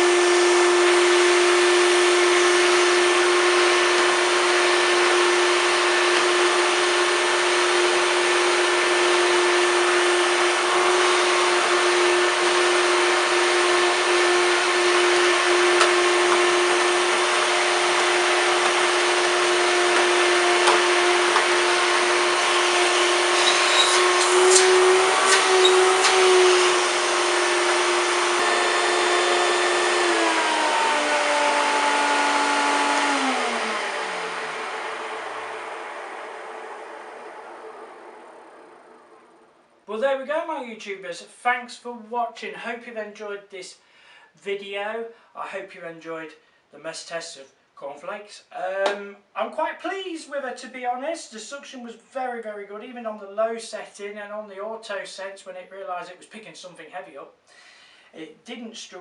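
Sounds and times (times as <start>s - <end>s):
vacuum cleaner motor whine: 0.0s - 39.7s.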